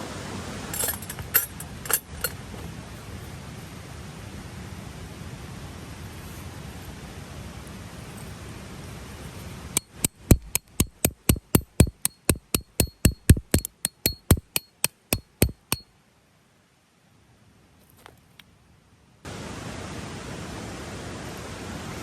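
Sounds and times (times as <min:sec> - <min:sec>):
hammer striking metal stake: 0:09.8 - 0:15.8.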